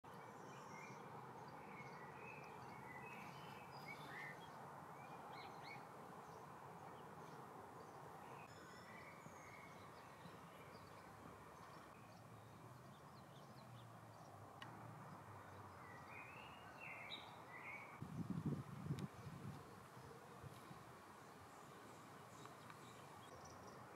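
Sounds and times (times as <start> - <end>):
small birds chirping: 0.1 - 23.9.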